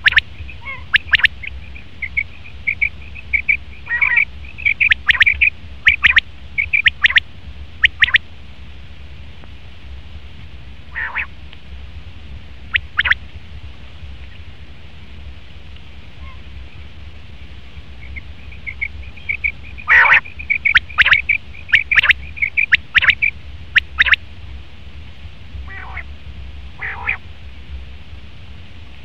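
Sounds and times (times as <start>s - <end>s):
quail calling: 0.0s - 7.2s, 7.8s - 8.2s, 10.9s - 11.3s, 12.7s - 13.2s, 16.2s - 16.5s, 18.0s - 24.2s, 25.7s - 26.1s, 26.8s - 27.2s
steady low hum: 0.0s - 29.0s.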